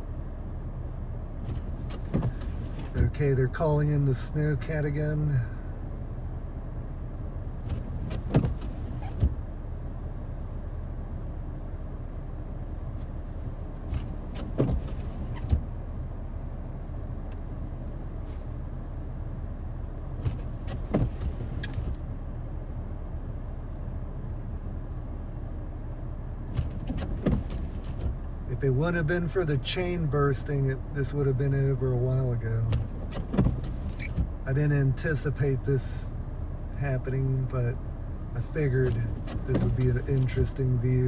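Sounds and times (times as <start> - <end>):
vehicle engine idling: 0.0 - 41.0
sharp knocks and clicks: 32.7 - 34.4.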